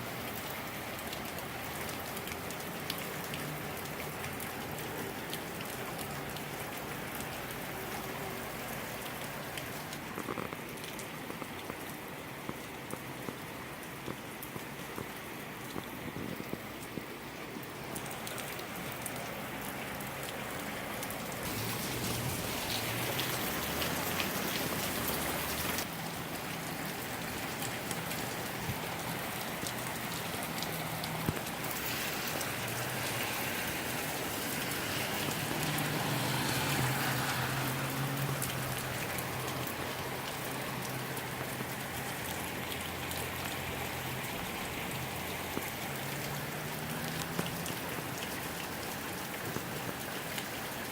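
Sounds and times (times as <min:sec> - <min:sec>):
rain pouring: 0:00.0 - 0:50.9.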